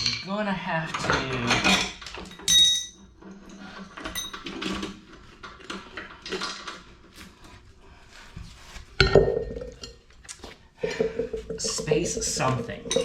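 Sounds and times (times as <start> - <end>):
metal tools clinking and rattling: 0.9 - 6.9.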